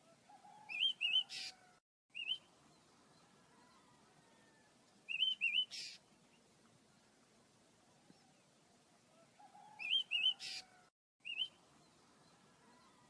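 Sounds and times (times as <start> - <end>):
harsh bird call: 9.5 - 11.5.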